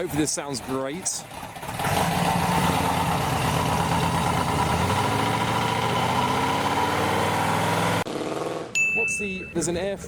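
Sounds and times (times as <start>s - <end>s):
car engine running at low revs: 1.3s - 8.6s.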